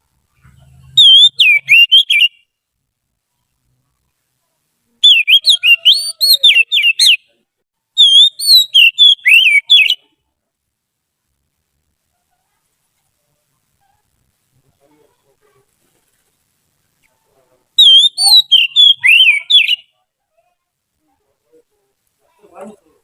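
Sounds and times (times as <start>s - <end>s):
bird singing whistled notes: 0.6s - 2.5s, 5.0s - 7.3s, 8.0s - 10.1s, 17.8s - 19.9s.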